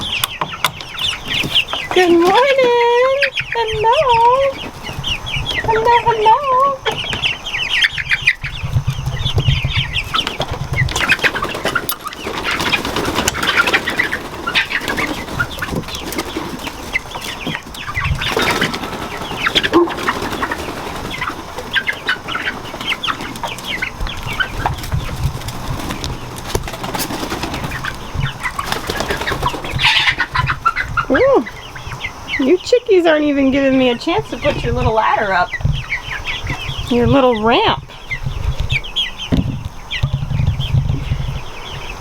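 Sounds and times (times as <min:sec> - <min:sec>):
chickens clucking and squawking: 0:00.0 - 0:42.0
chickens scuffling: 0:00.0 - 0:42.0
wings flapping: 0:01.0 - 0:32.0.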